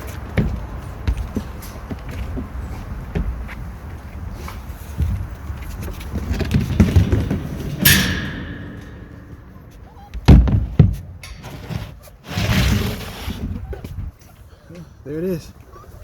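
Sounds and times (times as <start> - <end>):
knocks and handling noises: 4.9 - 12.6
heavy thuds: 5.0 - 12.8
sharp metallic clang: 7.6 - 11.7.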